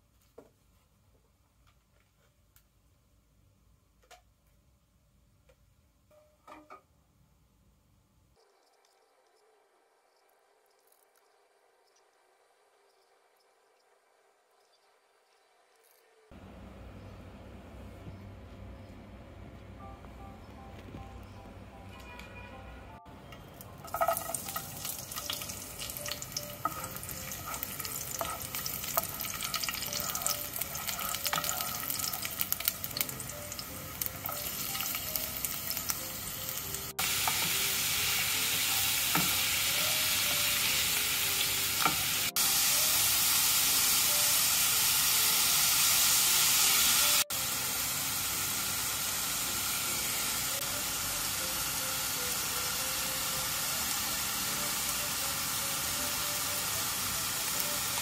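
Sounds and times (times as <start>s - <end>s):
quiet background music: 5.3s - 58.0s
food sizzling in a frying pan: 23.8s - 58.0s.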